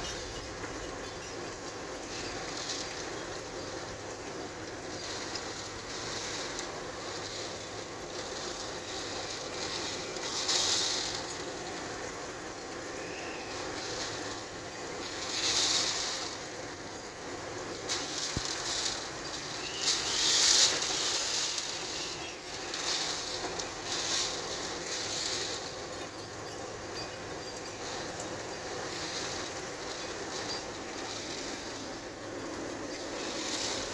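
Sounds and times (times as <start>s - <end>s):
wind and rain rushing: 0.0s - 33.9s.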